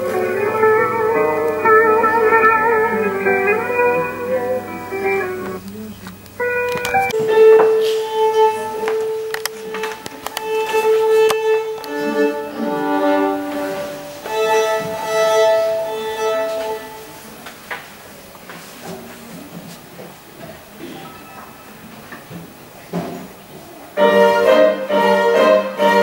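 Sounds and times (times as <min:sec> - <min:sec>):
violin slow melody: 0:00.0 - 0:17.4, 0:24.0 - 0:26.0.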